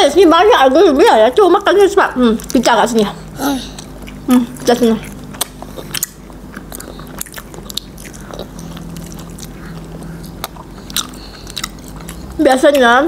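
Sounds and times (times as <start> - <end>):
people chewing: 1.3 - 13.0
mouth clicks and smacks: 3.7 - 12.9.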